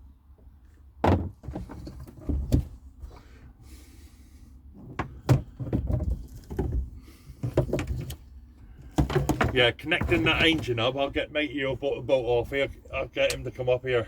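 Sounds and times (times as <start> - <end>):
objects clunking and knocking: 1.0 - 3.2, 4.8 - 11.2.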